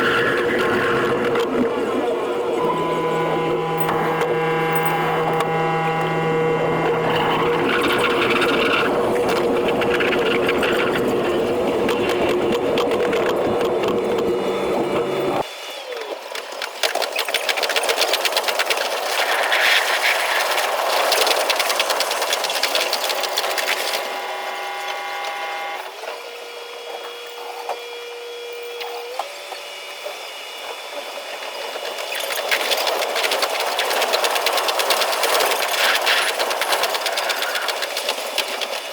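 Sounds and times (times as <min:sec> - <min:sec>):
steady tones: 0:02.5 - 0:10.3.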